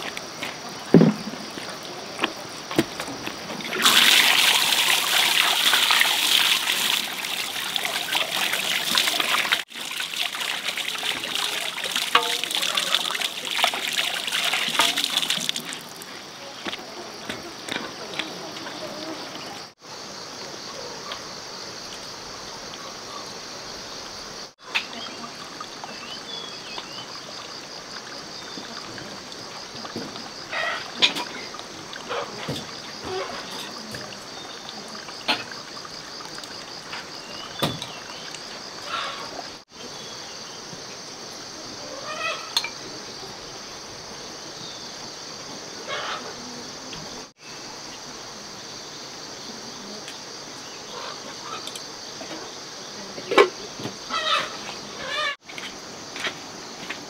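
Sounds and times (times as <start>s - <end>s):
insects trilling: 0.0s - 57.0s
hands knocking rustling and splashing: 0.9s - 16.1s.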